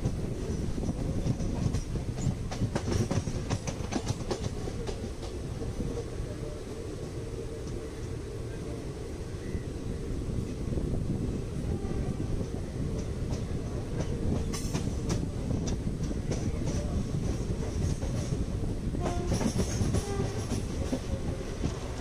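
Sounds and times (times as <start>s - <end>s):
wheels clattering over rails: 0.0s - 5.4s, 12.4s - 22.0s
train running gear rumble: 0.0s - 22.0s.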